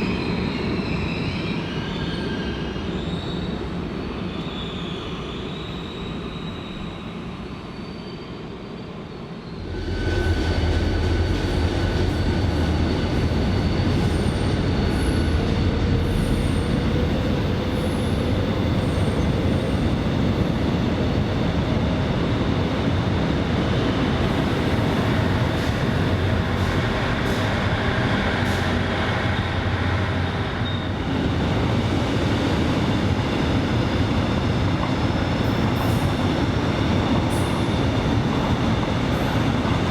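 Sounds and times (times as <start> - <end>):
train rumbling on rails: 0.0 - 39.9.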